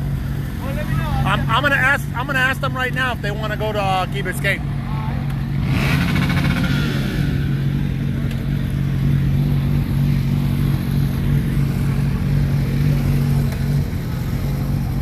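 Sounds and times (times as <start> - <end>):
motorcycle engine idling: 7.5 - 15.0.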